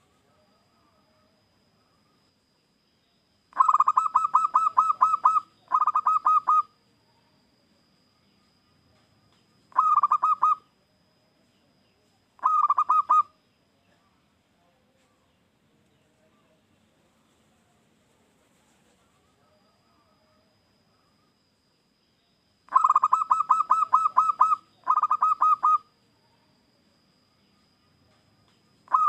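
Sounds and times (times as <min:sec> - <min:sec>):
dove cooing: 0:03.5 - 0:06.8, 0:09.7 - 0:10.6, 0:12.4 - 0:13.4, 0:22.7 - 0:25.9.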